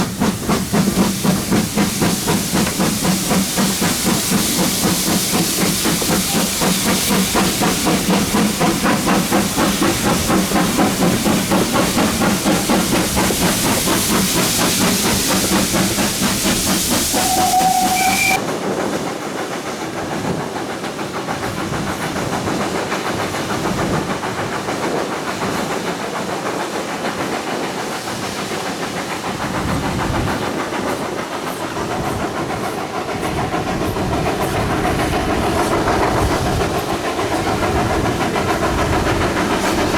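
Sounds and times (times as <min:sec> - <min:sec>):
loud steam hiss: 0:00.0 - 0:18.8, 0:22.4 - 0:39.9
steam locomotive exhaust beats: 0:00.0 - 0:18.9, 0:19.7 - 0:39.9
train chuffing: 0:00.0 - 0:39.9
steam whistle: 0:17.1 - 0:18.4.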